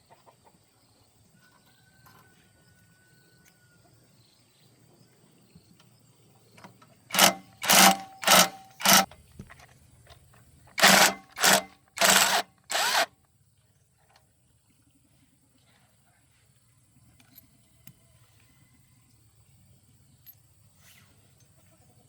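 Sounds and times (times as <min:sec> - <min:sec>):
power tool bursts: 0:07.1 - 0:09.1, 0:10.8 - 0:13.1.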